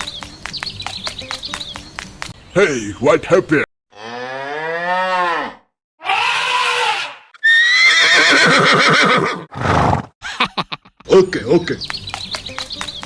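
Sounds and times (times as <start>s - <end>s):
long quavering animal call: 4.0s - 9.2s, 10.2s - 11.1s.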